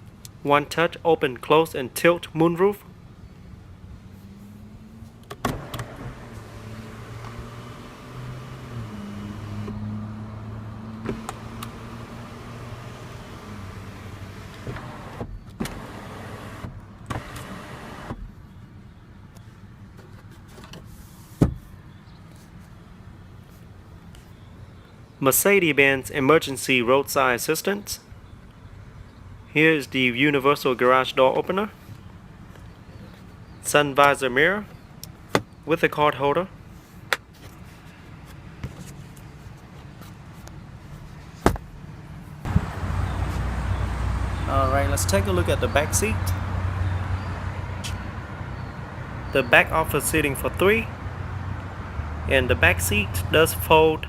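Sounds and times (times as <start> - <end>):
moonroof motor whirring: 5.4 - 18.2.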